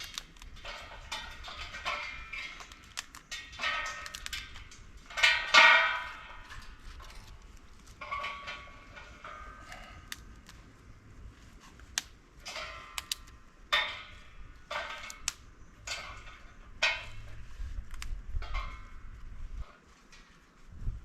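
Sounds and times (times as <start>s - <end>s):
hard objects knocking and clattering: 0.0s - 10.3s.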